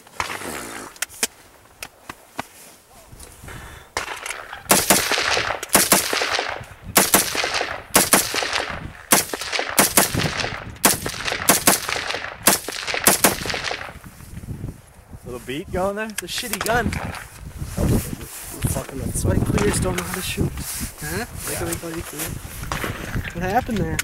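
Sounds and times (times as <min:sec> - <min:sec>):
rifle shots echoing: 0:04.0 - 0:14.0.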